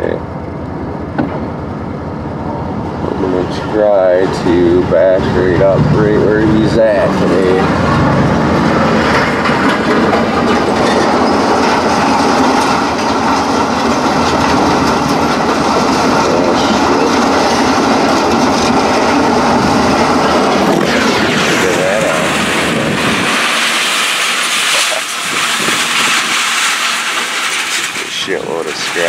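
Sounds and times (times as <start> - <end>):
truck engine rumbling: 0.0 - 29.0
metal rattling and clatter: 6.6 - 29.0.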